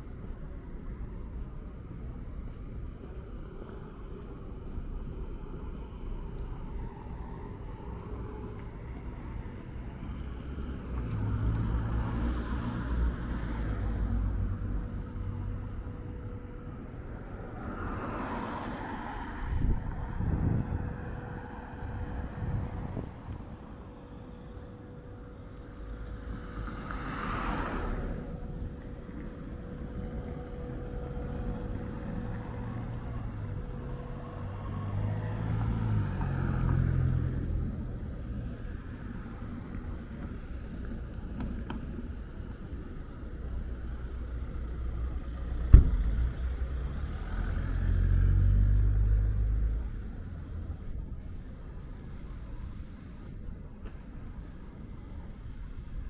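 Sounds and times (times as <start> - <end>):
engine rumble: 0.0 - 56.0
rumble of traffic: 0.0 - 56.0
car passing by: 6.9 - 16.2, 17.2 - 24.0, 25.9 - 28.8, 31.3 - 51.2
passing vehicle whoosh: 17.3 - 23.6, 26.4 - 28.6, 44.4 - 51.2.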